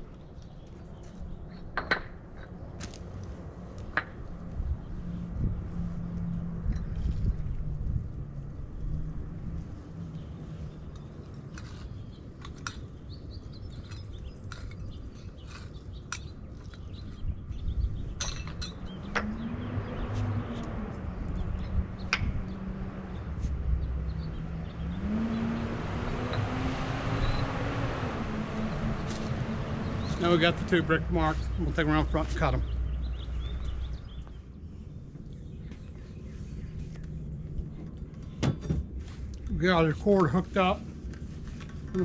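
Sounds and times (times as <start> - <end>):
engine hum: 0.0 - 42.0
steel tool scraping clay pavers: 11.4 - 12.8, 13.6 - 17.2.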